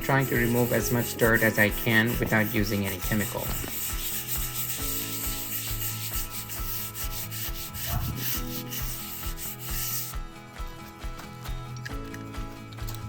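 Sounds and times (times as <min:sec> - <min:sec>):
brush scrubbing wet concrete: 0:00.0 - 0:10.2.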